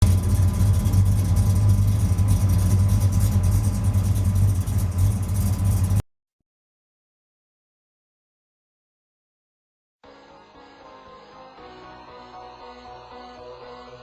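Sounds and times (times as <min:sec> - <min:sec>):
engine idling with deep rumble: 0:00.0 - 0:06.0.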